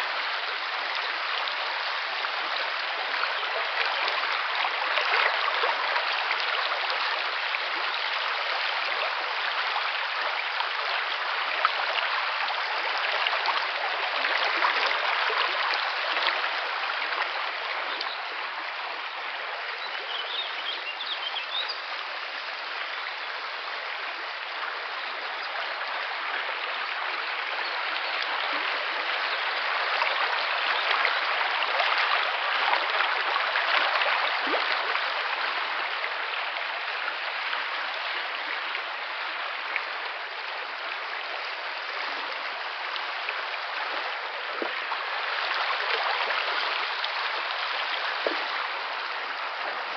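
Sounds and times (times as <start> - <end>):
river water flowing: 0.0 - 49.9.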